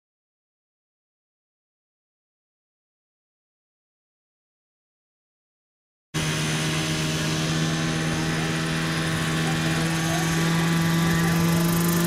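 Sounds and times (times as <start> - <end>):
model helicopter jet turbine whine: 6.2 - 12.0.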